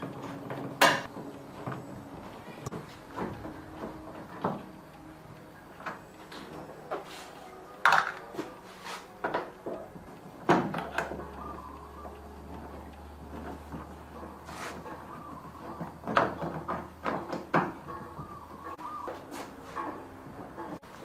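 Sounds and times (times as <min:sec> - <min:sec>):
knocks and clicks of tools handled: 0:05.8 - 0:11.3, 0:12.7 - 0:20.8.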